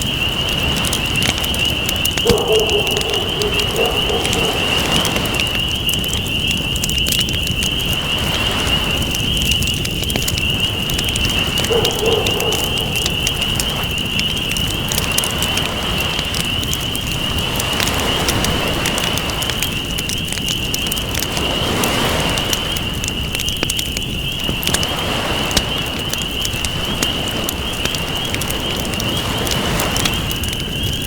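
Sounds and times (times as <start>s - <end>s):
campfire crackling and popping: 0.0s - 31.0s
ocean waves washing in: 0.3s - 5.9s.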